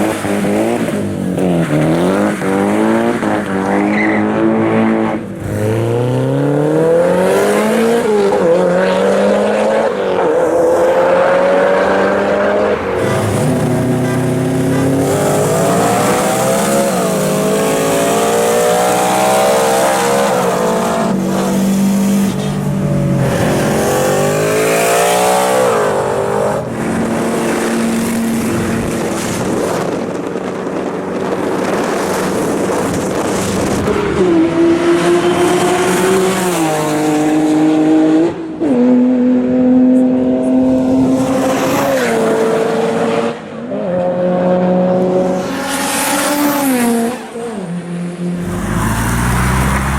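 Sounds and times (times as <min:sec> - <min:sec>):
car engine accelerating through gears: 0:00.0 - 0:30.0, 0:48.3 - 0:49.9.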